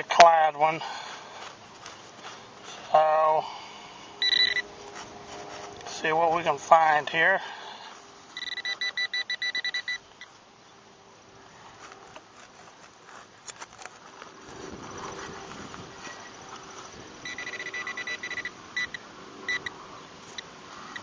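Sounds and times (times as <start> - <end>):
digging in dry dirt: 0.0 - 21.0
metal detector beeps: 4.2 - 4.7, 8.4 - 10.1, 17.2 - 19.7, 20.3 - 21.0.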